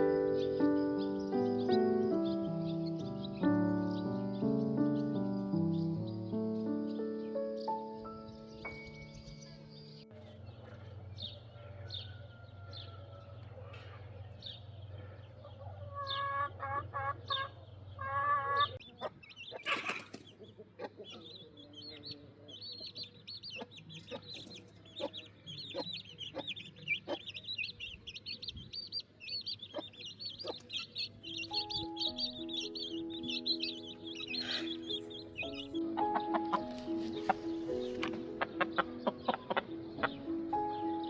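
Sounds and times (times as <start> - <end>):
small birds chirping: 0.0 - 41.0
chickens clucking: 9.8 - 41.0.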